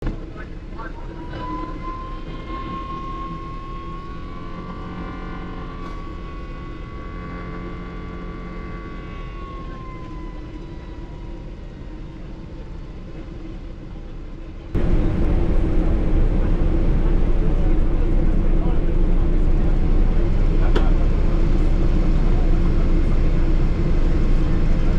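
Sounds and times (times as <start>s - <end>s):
aircraft touchdown rumble: 14.6s - 24.9s
jet engine whistling rush: 14.8s - 24.9s.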